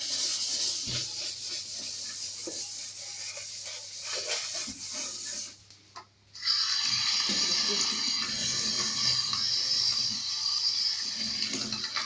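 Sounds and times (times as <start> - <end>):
steel wool scrubbing a faucet: 0.0 - 5.6, 8.0 - 12.0.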